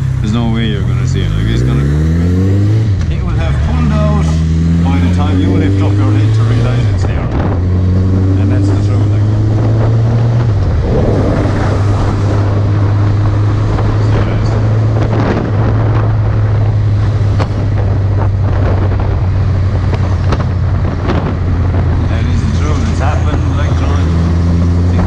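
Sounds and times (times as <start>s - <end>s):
motorcycle engine drone: 0.0s - 25.0s
wind noise on microphone: 5.3s - 25.0s.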